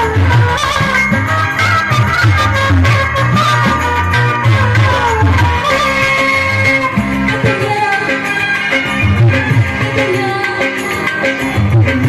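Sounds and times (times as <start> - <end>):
pop music with steady beat: 0.0 - 12.0.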